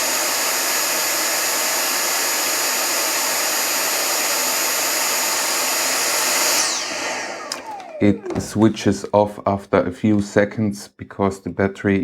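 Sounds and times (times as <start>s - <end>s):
hand vacuum whining: 0.0s - 9.2s.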